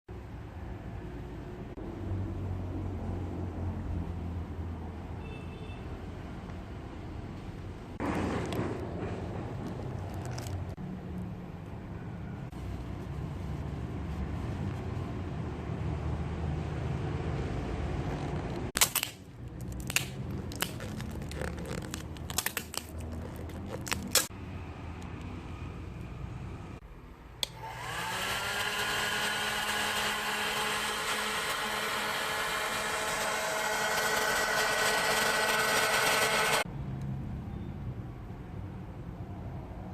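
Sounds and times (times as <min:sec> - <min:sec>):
hair dryer motor whining: 0:27.4 - 0:36.7.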